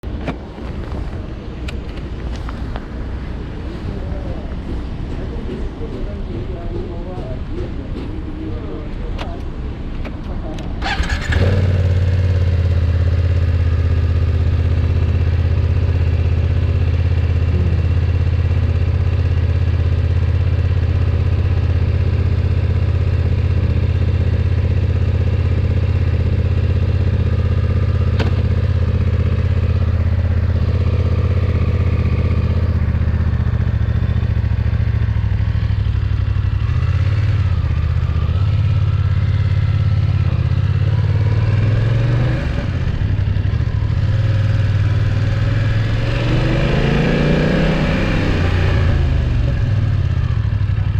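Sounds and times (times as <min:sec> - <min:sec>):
motorcycle engine idling: 0:10.8 - 0:41.7, 0:42.6 - 0:45.6, 0:48.8 - 0:50.9.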